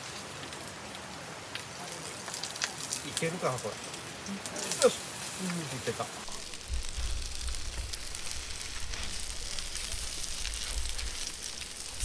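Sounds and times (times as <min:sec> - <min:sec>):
food sizzling with pops: 0:00.0 - 0:12.0
low rumble: 0:06.3 - 0:12.0.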